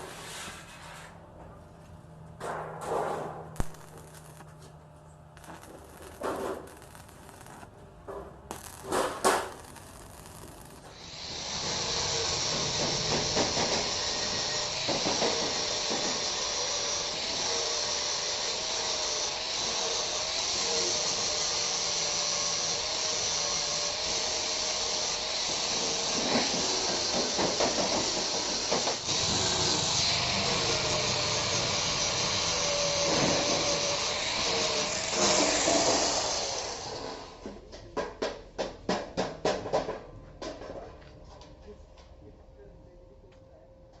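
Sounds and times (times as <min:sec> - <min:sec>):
power tool on steel: 0:03.6 - 0:04.6, 0:05.4 - 0:37.4.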